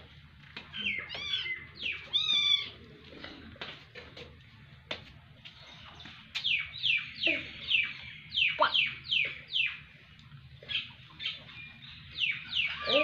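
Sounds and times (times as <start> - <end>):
bird chirping: 5.6 - 9.9, 10.6 - 13.0.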